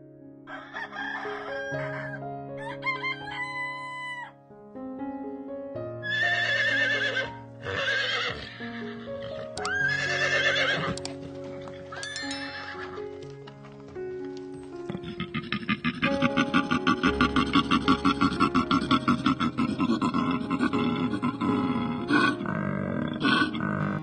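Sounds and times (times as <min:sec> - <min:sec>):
background music: 0:00.0 - 0:24.0
rooster crowing: 0:00.5 - 0:04.4
horse whinnying: 0:06.0 - 0:13.1, 0:17.1 - 0:24.0.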